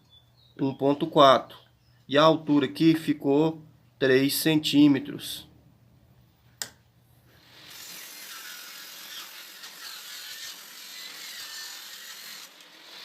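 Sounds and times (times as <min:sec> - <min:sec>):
table saw cutting wood: 0:07.4 - 0:13.0.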